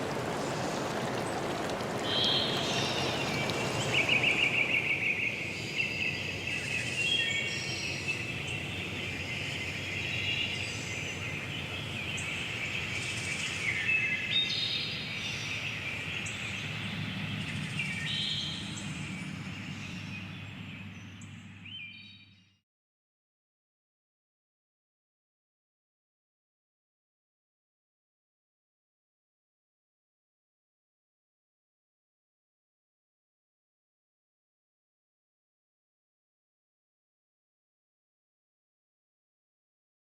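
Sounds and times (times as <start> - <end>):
running water hiss: 0.0 - 16.7
birds chirping and trilling: 0.0 - 22.5.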